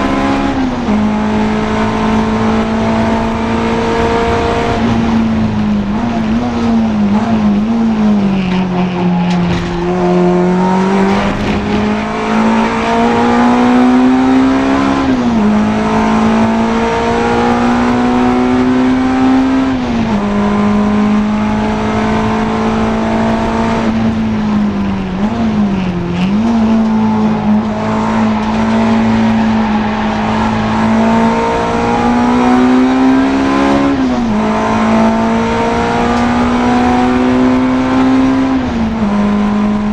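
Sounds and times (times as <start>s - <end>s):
race car engine revving hard: 0.0s - 39.9s.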